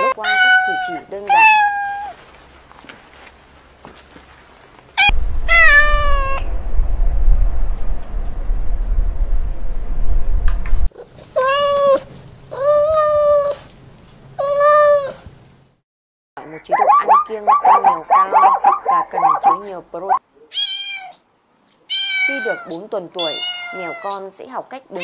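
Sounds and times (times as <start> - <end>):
kitten meowing: 5.0 - 6.5, 20.5 - 21.2, 21.9 - 24.2
low rumbling noise: 5.0 - 10.9.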